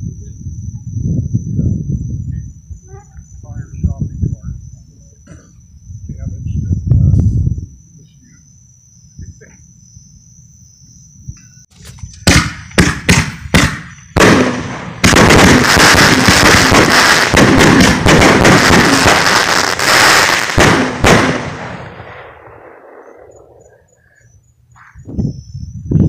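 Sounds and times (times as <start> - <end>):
firework crackling: 11.8 - 23.7
firework bangs: 11.8 - 23.8.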